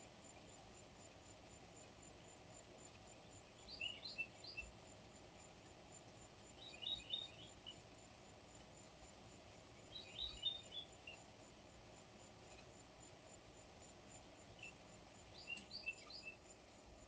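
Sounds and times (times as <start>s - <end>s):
birds chirping faintly: 0.0s - 17.0s
microphone hiss: 0.0s - 17.0s.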